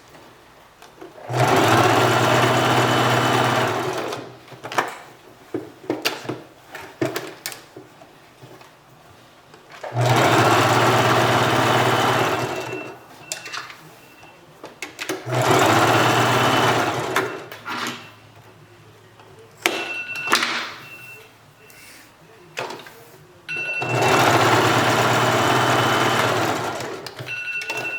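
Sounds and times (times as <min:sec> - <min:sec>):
sewing machine running: 0:01.2 - 0:04.4, 0:09.8 - 0:13.0, 0:15.1 - 0:17.6, 0:23.6 - 0:27.8.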